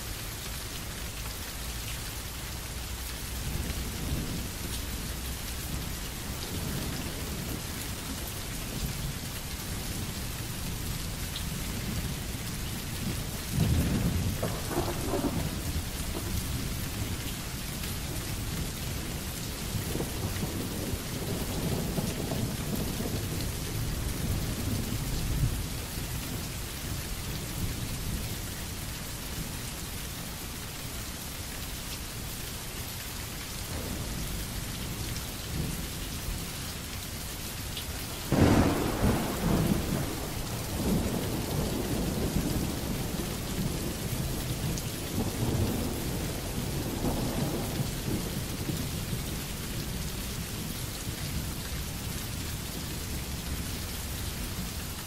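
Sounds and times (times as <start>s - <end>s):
rain falling: 0.0s - 55.0s
thunder rumbling: 13.0s - 17.4s, 38.2s - 49.2s.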